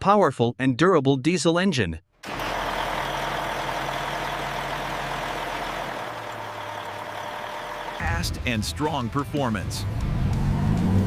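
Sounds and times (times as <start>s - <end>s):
truck engine running: 2.2s - 8.5s.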